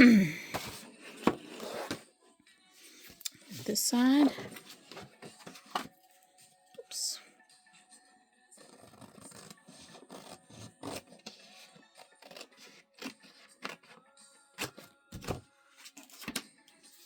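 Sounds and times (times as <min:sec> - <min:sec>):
quiet background music: 0:00.0 - 0:17.0
book cover rustling and clicking: 0:00.5 - 0:02.0, 0:04.2 - 0:05.9, 0:08.6 - 0:14.0, 0:14.6 - 0:16.5.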